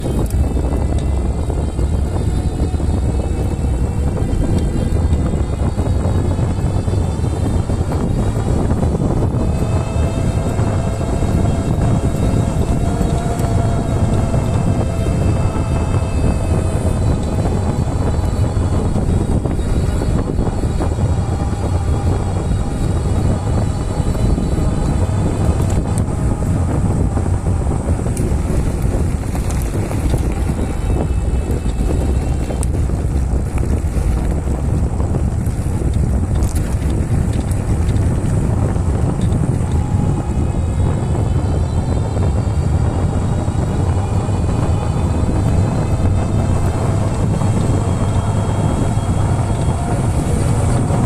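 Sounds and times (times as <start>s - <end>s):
bike tyre rumble: 0.0s - 51.0s
faint whining tones: 0.0s - 51.0s
wind buffeting microphone: 0.0s - 51.0s.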